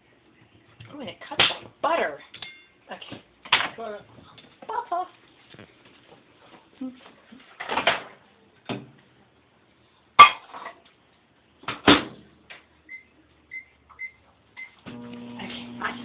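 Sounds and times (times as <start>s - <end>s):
microwave oven humming: 14.7s - 16.0s.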